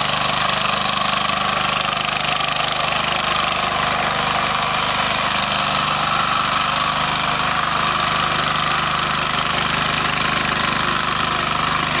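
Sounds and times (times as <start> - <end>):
diesel tiller engine running: 0.0 - 12.0.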